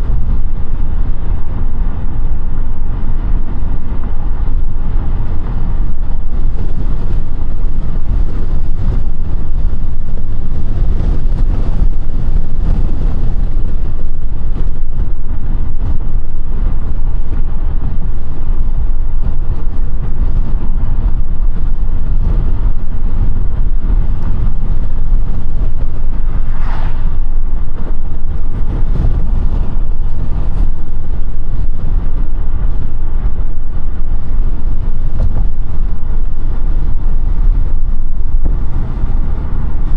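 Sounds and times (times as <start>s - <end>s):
car driving road rumble: 0.0s - 39.9s.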